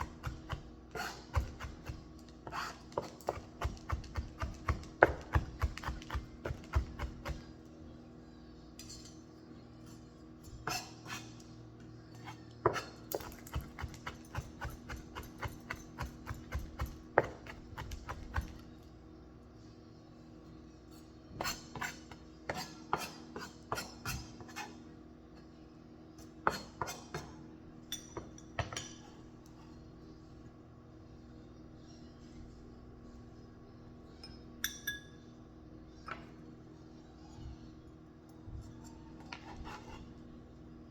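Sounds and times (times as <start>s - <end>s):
knife chopping on cutting board: 0.0s - 7.5s, 12.7s - 18.6s
low steady hum: 0.0s - 40.9s
dishes and utensils clinking: 34.1s - 35.3s.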